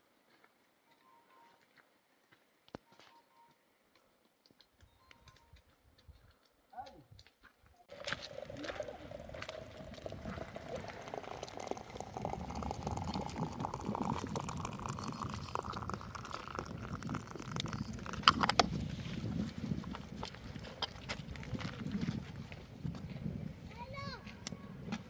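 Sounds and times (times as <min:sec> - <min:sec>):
water filling a container: 0:07.9 - 0:22.3.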